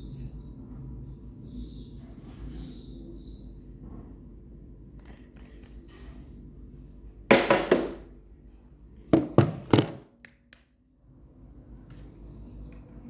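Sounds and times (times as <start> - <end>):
sharp knocks: 9.2 - 10.0.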